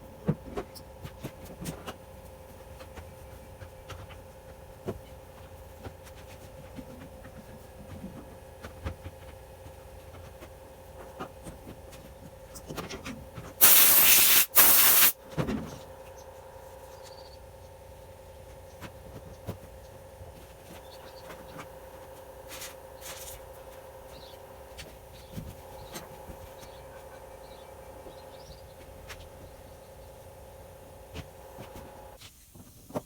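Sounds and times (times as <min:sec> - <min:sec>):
steady low hum: 0:00.0 - 0:32.2
spraying hiss: 0:13.6 - 0:15.2.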